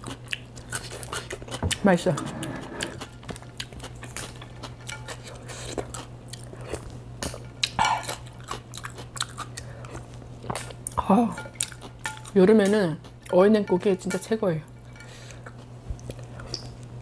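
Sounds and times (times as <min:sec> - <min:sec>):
steady low hum: 0:00.0 - 0:17.0
wet chewing mouth clicks: 0:16.0 - 0:16.9.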